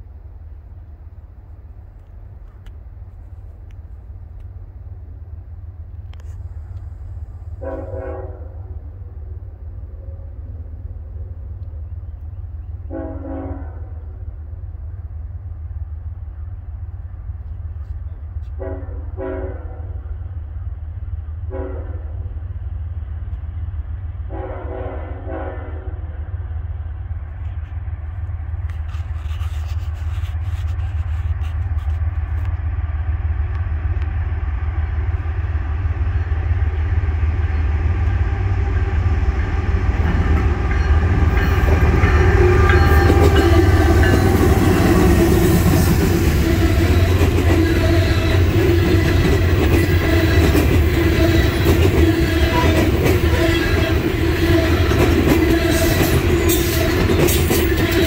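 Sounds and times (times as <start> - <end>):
train engines approaching: 0.0 - 58.0
locomotive horn blasts: 7.6 - 8.8, 12.9 - 14.2, 18.5 - 20.1, 21.5 - 22.3, 24.3 - 26.1, 39.4 - 58.0
steel wheels clattering over rail joints: 39.5 - 58.0.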